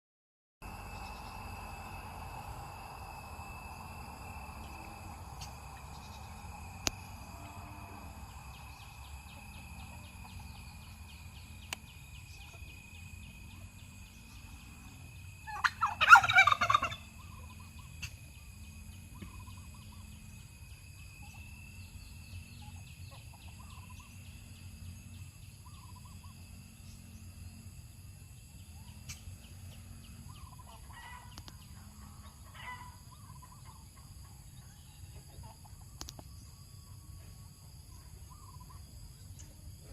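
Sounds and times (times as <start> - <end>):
faint steady hum: 0.6 - 39.9
turkey gobbling: 15.4 - 18.2, 30.3 - 31.5, 32.1 - 34.5.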